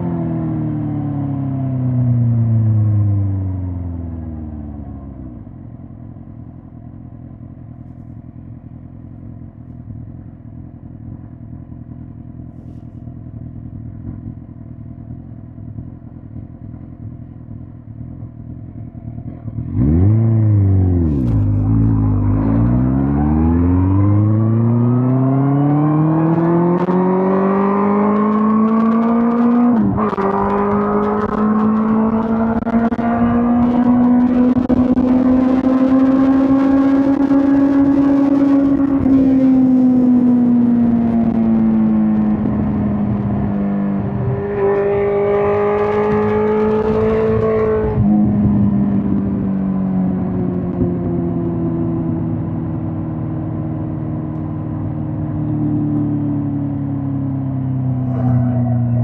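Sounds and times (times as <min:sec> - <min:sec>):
motorcycle revving and accelerating: 0:00.0 - 0:07.7, 0:08.6 - 0:59.0
motorcycle engine idling: 0:05.4 - 0:19.7.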